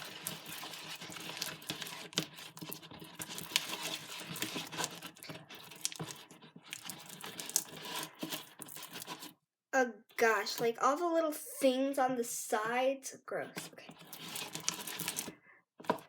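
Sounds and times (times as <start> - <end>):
slime squelching in a bowl: 0.0 - 9.4, 13.6 - 16.0.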